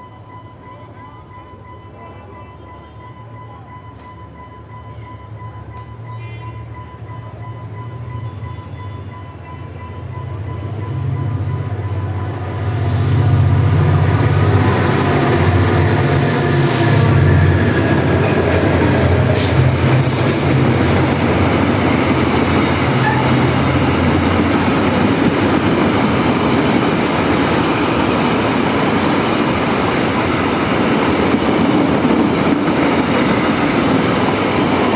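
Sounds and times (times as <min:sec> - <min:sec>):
train wheels rumbling on rails: 0:07.0 - 0:34.9
locomotive droning: 0:10.3 - 0:34.9.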